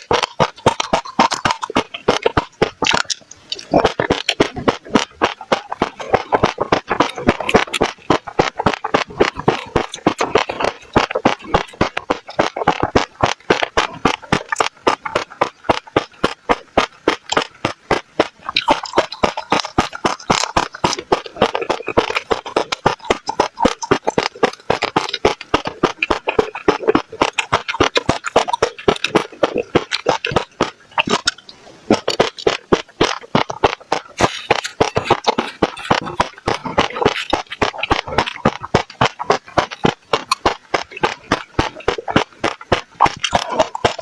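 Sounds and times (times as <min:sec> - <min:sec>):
seeds crunching in mouth: 0:00.0 - 0:44.0.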